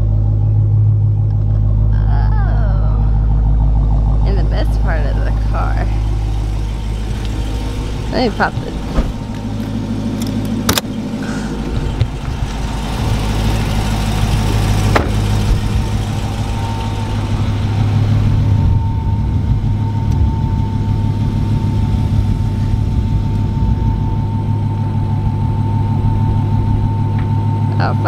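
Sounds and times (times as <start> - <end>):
car engine idling: 0.0 - 28.0
hood release click: 8.6 - 11.0.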